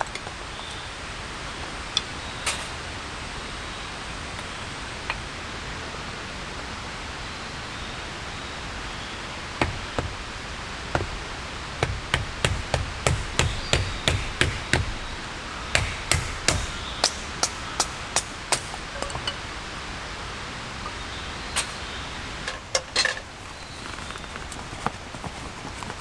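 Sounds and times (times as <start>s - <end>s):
sharp chopping knocks: 9.6s - 19.3s.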